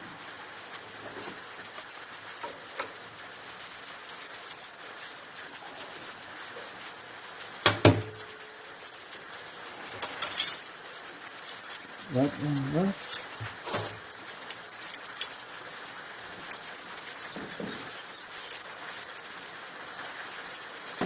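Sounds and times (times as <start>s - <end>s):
small metallic clicks and knocks: 1.7s - 3.0s, 10.0s - 10.7s, 13.0s - 15.5s, 16.4s - 18.8s.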